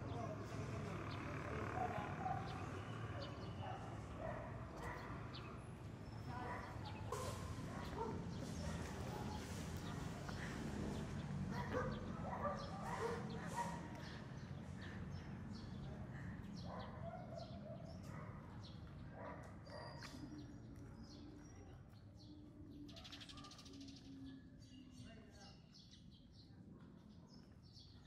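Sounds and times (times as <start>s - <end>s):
birds chirping: 0.0s - 21.6s.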